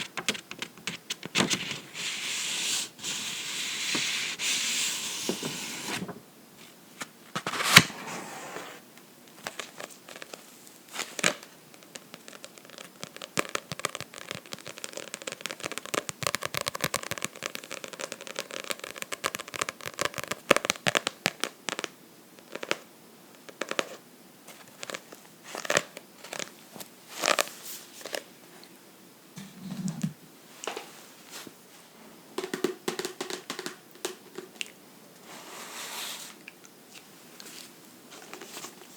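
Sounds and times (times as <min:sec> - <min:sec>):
scratching on a book: 0:11.2 - 0:20.4
tapping on a book: 0:32.4 - 0:34.5.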